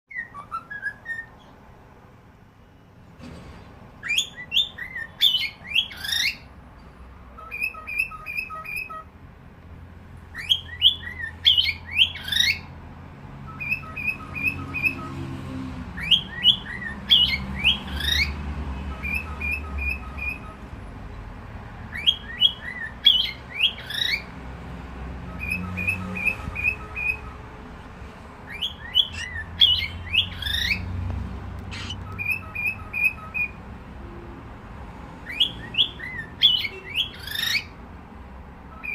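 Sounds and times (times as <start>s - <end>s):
cockatiel whistling: 0.1s - 1.3s, 4.0s - 6.4s, 7.4s - 9.1s, 13.5s - 15.1s, 16.0s - 20.6s, 21.9s - 24.3s, 25.3s - 27.4s, 28.5s - 30.8s, 31.7s - 33.6s.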